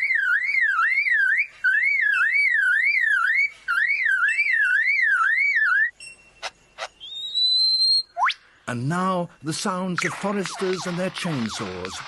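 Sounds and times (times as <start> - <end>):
bird mimicking car alarm: 0.0 - 8.2.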